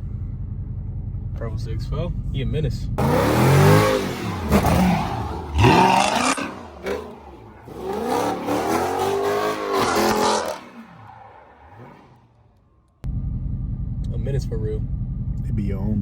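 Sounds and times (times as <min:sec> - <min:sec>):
car engine revving: 0:03.0 - 0:13.8.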